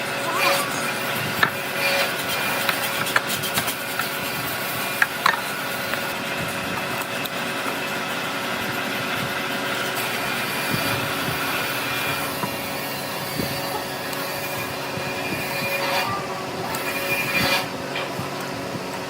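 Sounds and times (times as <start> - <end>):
power tool motor whine: 0.0 - 19.0.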